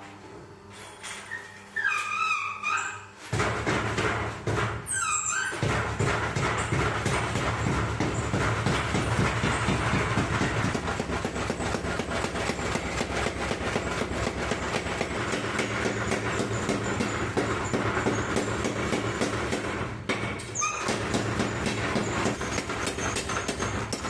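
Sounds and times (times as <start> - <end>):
power hammer striking: 5.6 - 24.0.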